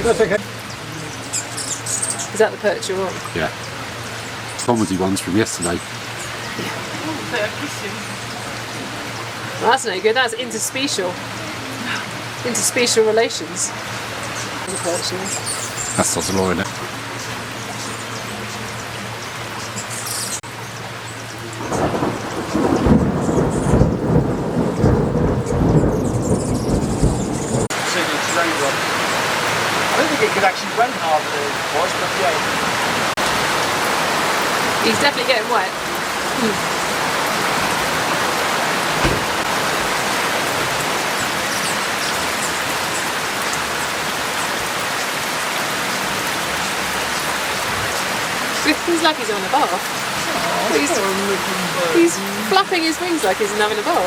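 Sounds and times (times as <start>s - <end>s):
heavy rain falling: 0.0s - 54.0s
deep rumbling: 11.0s - 27.9s
knock: 39.0s - 39.3s.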